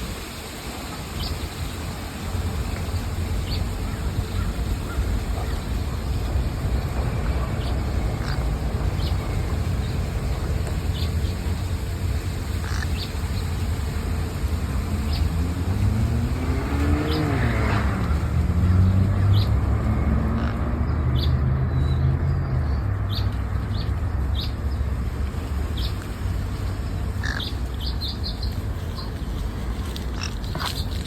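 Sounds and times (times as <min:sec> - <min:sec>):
steady low rumble: 0:00.0 - 0:31.0
vehicle engine passing: 0:01.7 - 0:31.0.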